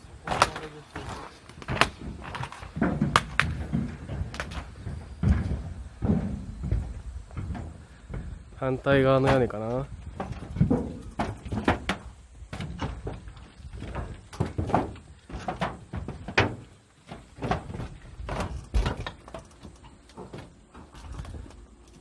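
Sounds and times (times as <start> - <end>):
footsteps on tin roof: 0.0 - 22.0.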